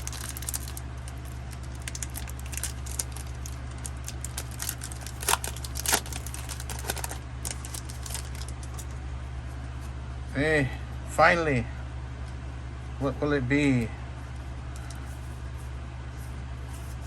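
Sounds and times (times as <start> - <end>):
foil wrapper crinkling and tearing: 0.0 - 9.0
steady low hum: 0.0 - 17.0.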